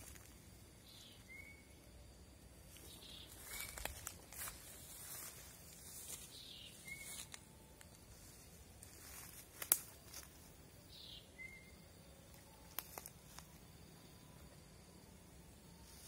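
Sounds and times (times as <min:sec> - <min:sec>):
sticks and twigs snapping: 0:03.5 - 0:04.6, 0:07.1 - 0:08.0, 0:08.8 - 0:10.3, 0:12.3 - 0:13.5.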